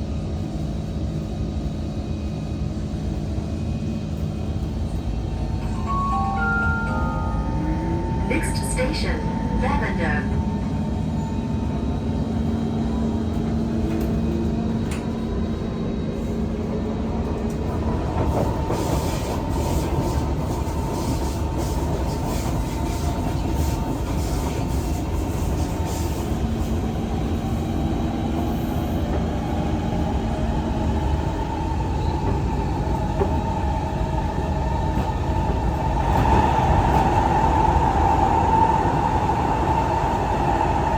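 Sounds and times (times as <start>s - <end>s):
train wheels rumbling on track: 0.0s - 5.9s, 7.4s - 40.9s
traction motors humming: 7.0s - 15.0s.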